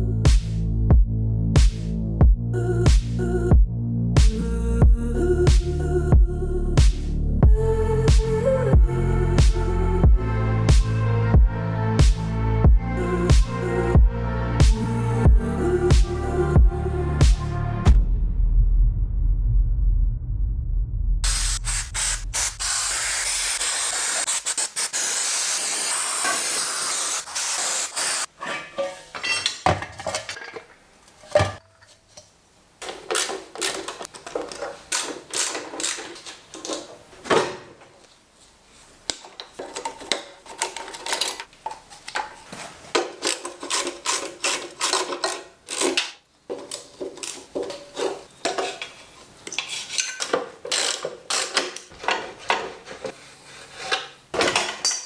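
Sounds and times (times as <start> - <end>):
steady hiss: 21.2 - 28.3
hand tools clicking on metal parts: 32.8 - 36.9, 43.0 - 52.6.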